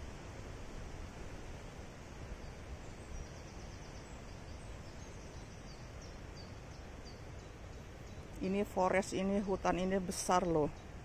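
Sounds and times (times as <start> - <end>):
rustling leaves: 0.0 - 11.0
wind: 0.0 - 11.0.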